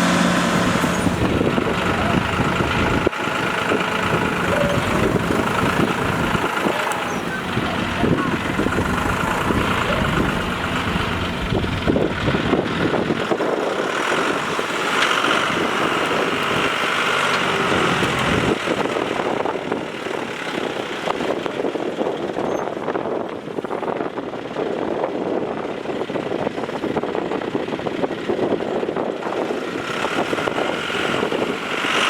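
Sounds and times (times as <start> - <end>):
higher mechanical drone: 0.0 - 19.8
deep engine rumble: 0.0 - 32.0.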